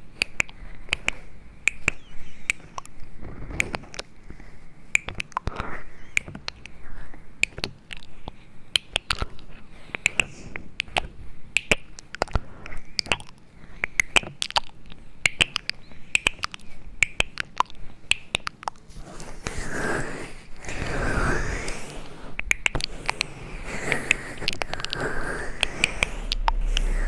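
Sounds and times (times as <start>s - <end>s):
sharp clicks and taps: 0.2s - 4.1s, 22.4s - 27.0s.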